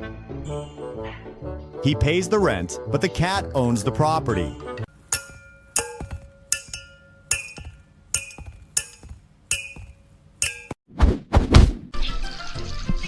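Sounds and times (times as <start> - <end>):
sharp ringing clinks: 5.0 - 10.8.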